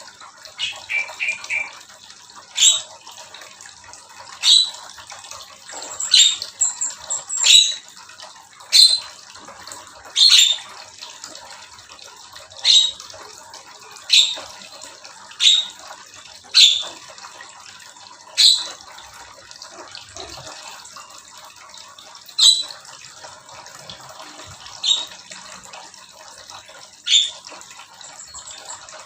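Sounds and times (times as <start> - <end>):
birds calling sharply: 0.6 - 1.8, 24.8 - 25.2.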